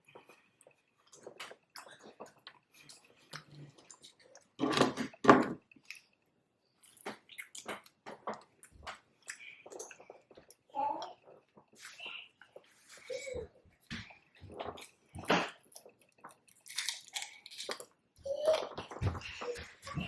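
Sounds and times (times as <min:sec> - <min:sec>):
wet chewing and crunching: 0:00.0 - 0:04.6, 0:05.6 - 0:12.8, 0:13.8 - 0:20.0.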